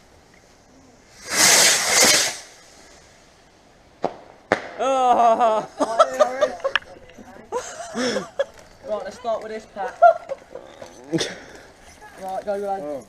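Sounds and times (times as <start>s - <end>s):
firework hissing rush: 0.0s - 4.8s
firework crack: 0.0s - 12.5s.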